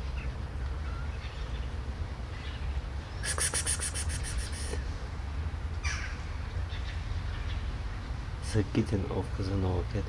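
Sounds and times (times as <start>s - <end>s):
bird chattering rattle: 3.2s - 4.8s.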